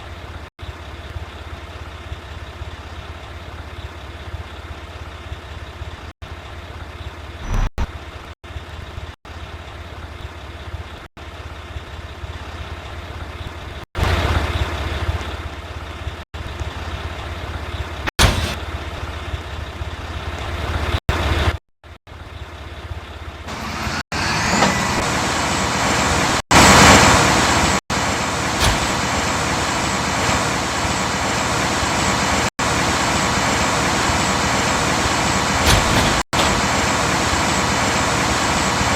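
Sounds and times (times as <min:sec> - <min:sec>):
garbage truck diesel engine: 0:00.0 - 0:38.9.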